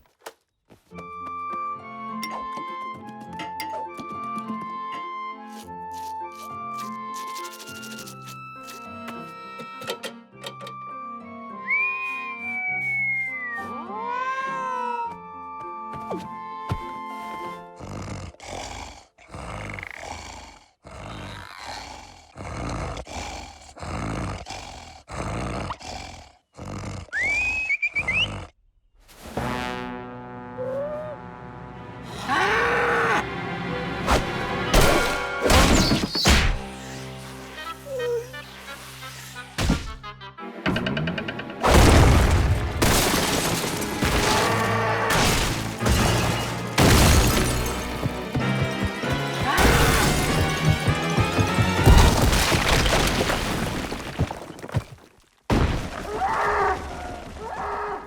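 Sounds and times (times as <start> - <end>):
cartoon music: 11.3 - 17.8, 30.2 - 32.5, 36.7 - 41.3
rising warbling whistle: 11.6 - 13.8.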